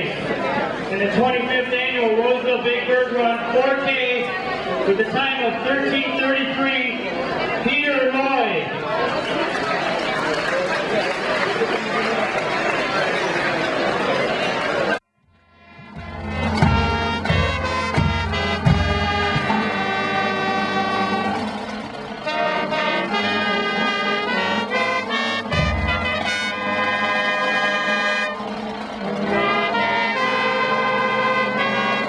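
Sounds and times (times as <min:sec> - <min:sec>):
brass band playing: 0:15.3 - 0:32.0
low drum hits: 0:15.8 - 0:19.9.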